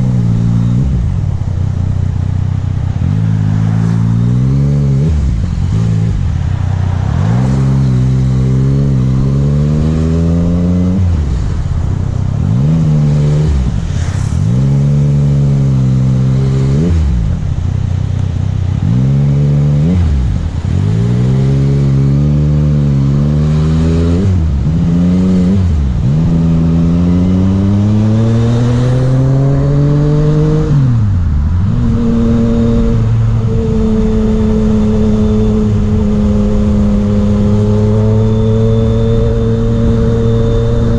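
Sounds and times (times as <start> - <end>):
motorcycle engine revving: 0.0 - 40.9
wind noise: 19.9 - 40.9.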